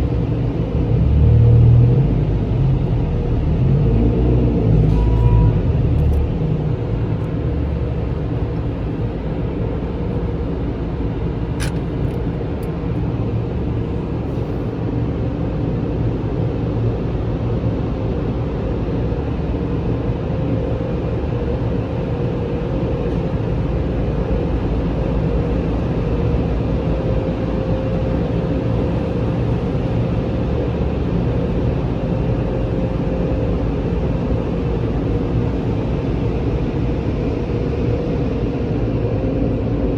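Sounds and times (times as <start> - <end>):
car wash machinery running: 0.0 - 39.9
click: 11.6 - 12.7.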